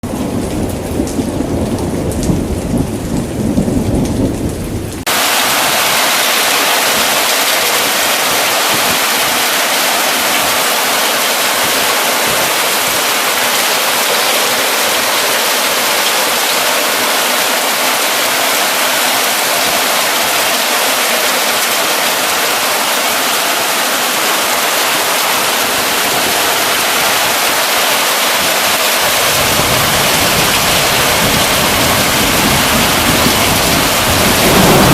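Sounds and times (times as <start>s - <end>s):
thunder rumbling: 0.0s - 9.4s, 29.1s - 34.9s
heavy rain pouring: 0.0s - 34.9s.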